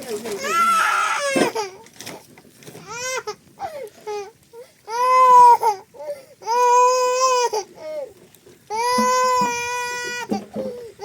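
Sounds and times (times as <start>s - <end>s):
baby crying: 0.3s - 1.8s, 2.8s - 8.1s, 8.7s - 11.0s.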